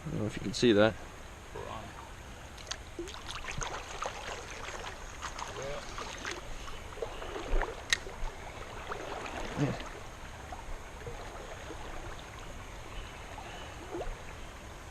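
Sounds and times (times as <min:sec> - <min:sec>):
creek water babbling over rocks: 0:02.0 - 0:14.9
small splashes and drips: 0:02.5 - 0:12.6.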